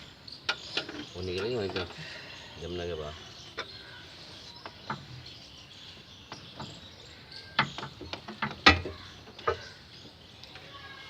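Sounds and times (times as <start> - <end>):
hand tools clicking and knocking: 0.5 - 2.0, 7.6 - 9.7.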